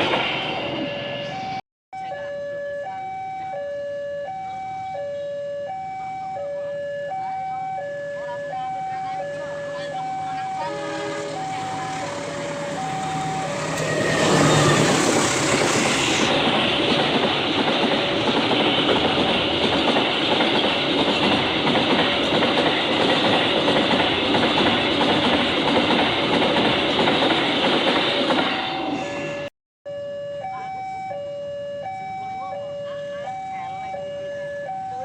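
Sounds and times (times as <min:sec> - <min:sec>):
train passing on rails: 0:00.0 - 0:01.6, 0:08.9 - 0:29.5
level crossing warning alarm: 0:00.8 - 0:16.8, 0:29.9 - 0:35.0.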